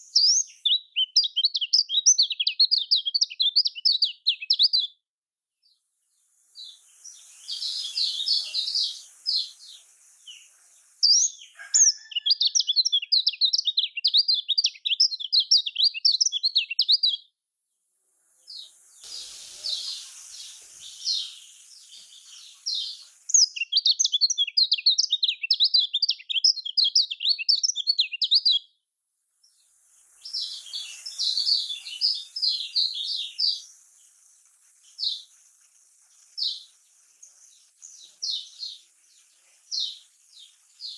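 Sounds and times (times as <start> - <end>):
hiss: 6.0 - 12.1, 17.8 - 24.2, 29.3 - 40.9
bird twittering: 6.6 - 17.2, 18.6 - 28.6, 30.3 - 34.2.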